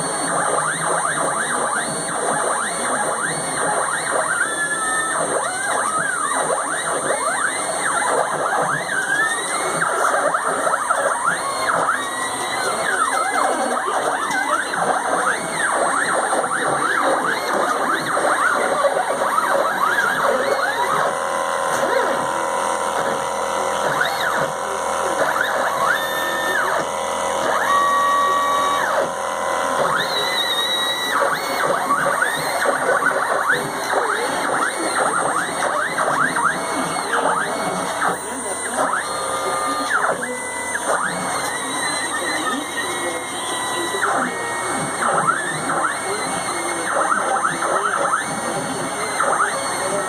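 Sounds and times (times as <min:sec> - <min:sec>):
stepper motors whining: 0:00.0 - 0:50.0.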